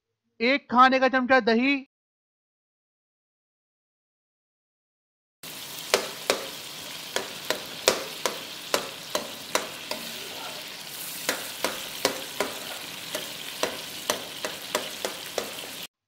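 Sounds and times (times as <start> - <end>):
food sizzling in wok: 5.4 - 16.0
steel spoon scraping and knocking pan: 5.8 - 15.9.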